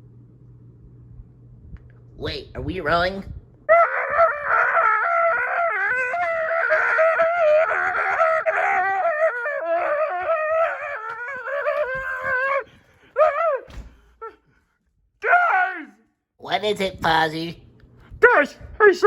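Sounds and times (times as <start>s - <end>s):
high-pitched wavering wordless cry: 3.7s - 14.4s.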